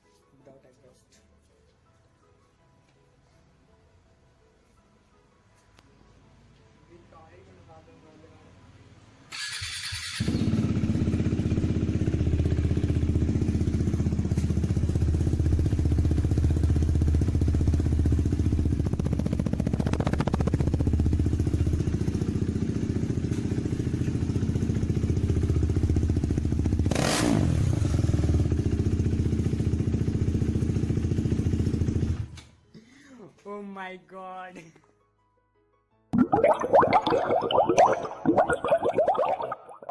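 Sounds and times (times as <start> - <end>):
motorcycle engine running: 10.2 - 32.3.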